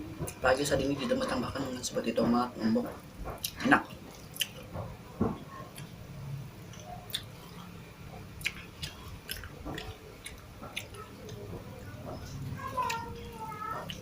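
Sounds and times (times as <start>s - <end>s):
person chewing food: 1.3s - 6.0s, 6.6s - 14.0s
mouth clicks and smacks: 3.3s - 3.6s, 4.2s - 4.9s, 6.6s - 12.2s.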